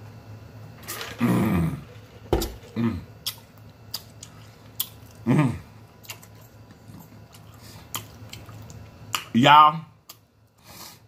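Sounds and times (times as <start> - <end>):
person humming: 1.2 - 1.9, 2.7 - 3.1
person chewing: 3.1 - 5.2, 6.0 - 8.9.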